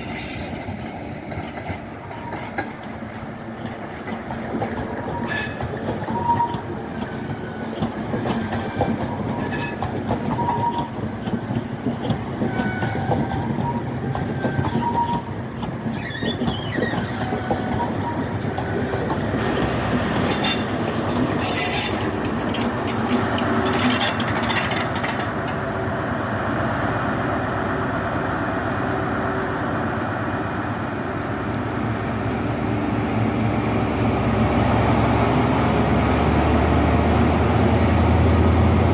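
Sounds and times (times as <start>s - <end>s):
train rumbling on rails: 0.0s - 38.9s
rapid rail clatter: 0.6s - 25.7s
high wheel squeals: 5.1s - 15.3s, 15.9s - 18.9s, 20.2s - 22.7s.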